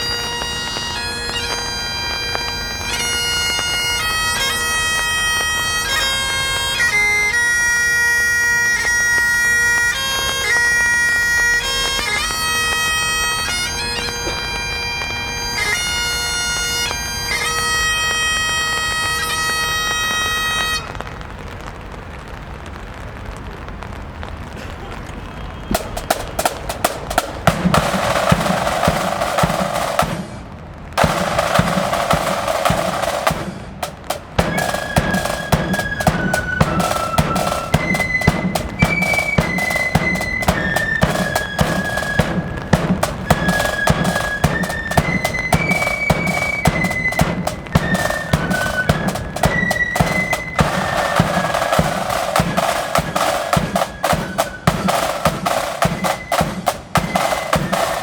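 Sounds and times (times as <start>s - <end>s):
snare drum rolls: 0.0s - 7.5s, 8.8s - 20.8s, 25.7s - 58.0s
flutes playing a tune: 0.0s - 21.0s, 25.4s - 30.4s, 31.0s - 58.0s
bass drum strokes: 25.8s - 57.9s.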